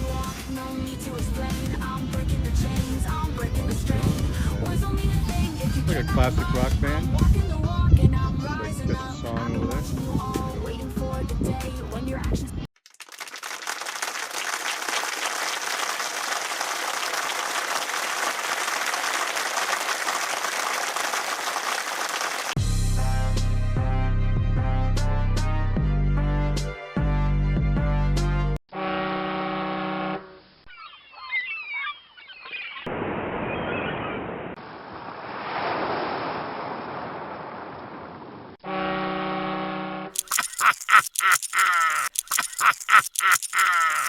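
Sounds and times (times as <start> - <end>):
wind: 0.0 - 12.7, 29.0 - 44.0
crowd clapping: 12.8 - 22.6, 40.3 - 44.0
birds crying: 30.7 - 32.9
waves: 35.1 - 37.2.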